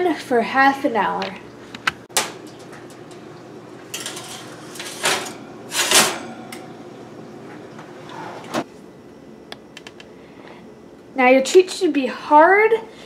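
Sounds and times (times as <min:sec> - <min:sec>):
oven door clunking: 0:02.1 - 0:06.9
baking tray scraping: 0:03.9 - 0:06.6, 0:08.0 - 0:08.6.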